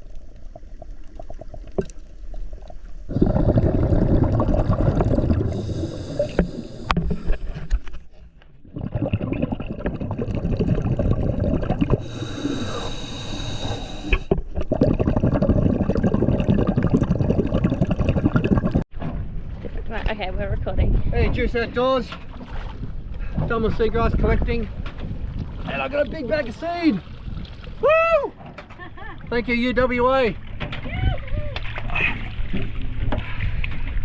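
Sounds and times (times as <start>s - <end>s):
water sloshing and splashing: 22.0s - 23.8s, 24.7s - 34.0s.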